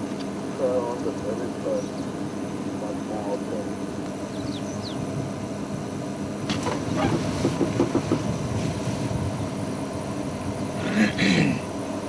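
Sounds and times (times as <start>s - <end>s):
vehicle engine humming: 0.0s - 12.0s
falling bird chirp: 4.3s - 5.0s
light knocks: 6.5s - 8.3s.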